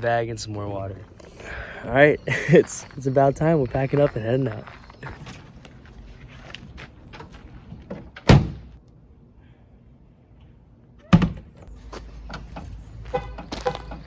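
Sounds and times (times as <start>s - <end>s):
vehicle door slamming: 7.9s - 8.7s.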